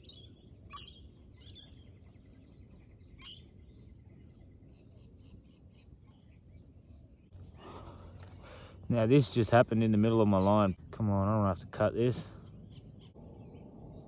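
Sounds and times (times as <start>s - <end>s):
small birds chirping: 0.0s - 14.0s
low background rumble: 10.7s - 14.0s.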